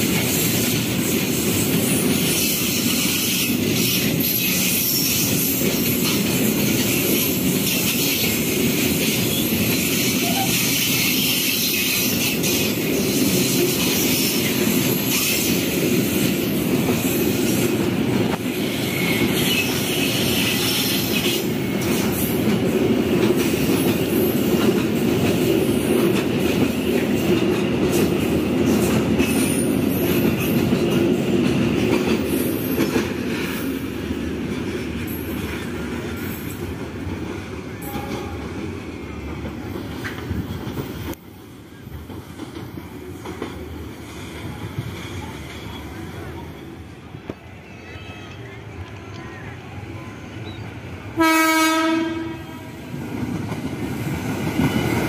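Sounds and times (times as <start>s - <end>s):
train wheels rumbling on rail: 0.0s - 55.0s
clacking over rail joints: 41.9s - 45.7s.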